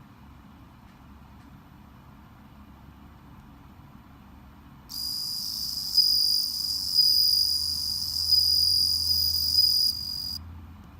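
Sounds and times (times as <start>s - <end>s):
cricket trilling: 4.9s - 10.4s.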